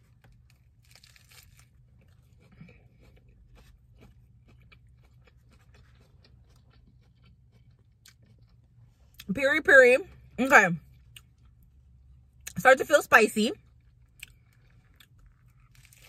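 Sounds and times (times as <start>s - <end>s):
person chewing a burger: 0.0s - 9.3s, 10.1s - 12.6s, 13.6s - 16.0s
low steady hum: 0.0s - 16.0s.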